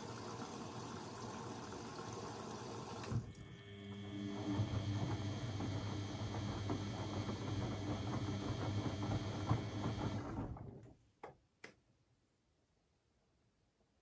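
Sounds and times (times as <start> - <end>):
washing machine humming and rattling: 0.0 - 11.0.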